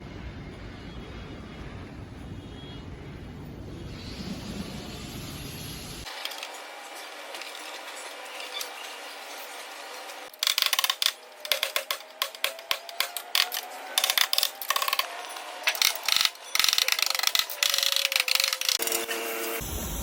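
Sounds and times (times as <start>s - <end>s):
metallic clicking and clinking: 10.3s - 18.9s.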